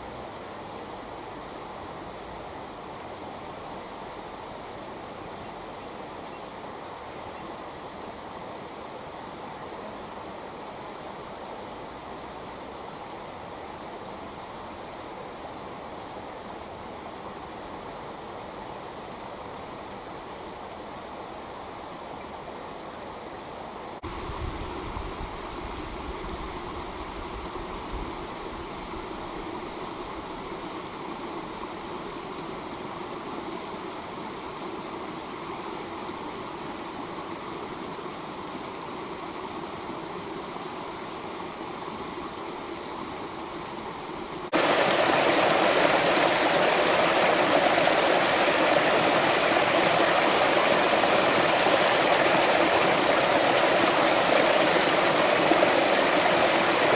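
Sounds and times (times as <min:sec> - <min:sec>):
creek water rushing over stones: 0:27.8 - 0:56.9.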